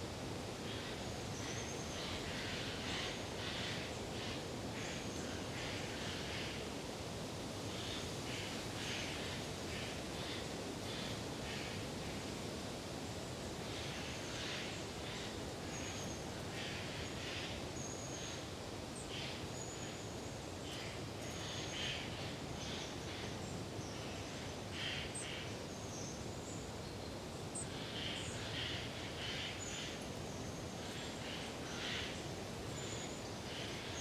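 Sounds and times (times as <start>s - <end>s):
wind through forest: 0.0s - 34.0s
tree frogs calling: 7.7s - 11.8s, 13.6s - 19.9s, 20.6s - 23.4s, 24.0s - 25.6s, 27.6s - 34.0s.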